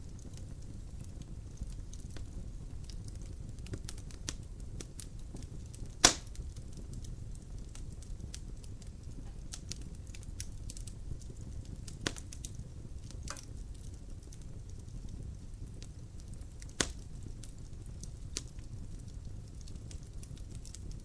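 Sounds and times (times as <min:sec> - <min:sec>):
wood fire crackling: 0:00.0 - 0:21.0
loud sharp pop of fire: 0:05.9 - 0:06.4, 0:12.0 - 0:12.3, 0:16.6 - 0:17.1.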